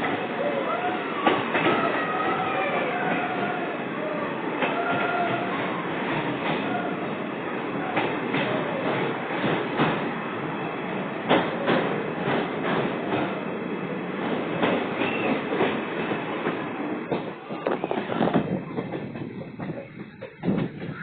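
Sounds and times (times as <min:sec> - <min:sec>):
train rumble: 0:00.0 - 0:21.0
train wheels clattering: 0:07.8 - 0:10.2, 0:11.2 - 0:13.4, 0:14.1 - 0:21.0.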